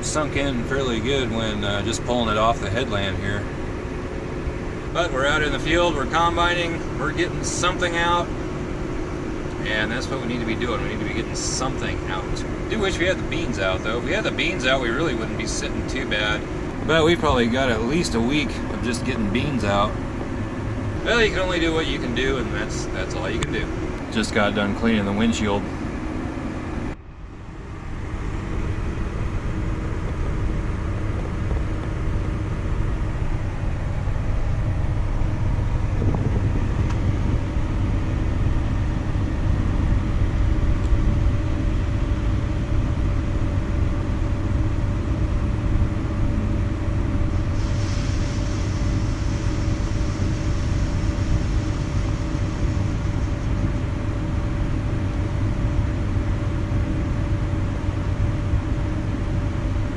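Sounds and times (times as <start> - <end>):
combine harvester running: 0.0 - 59.9
hiss: 47.4 - 54.2.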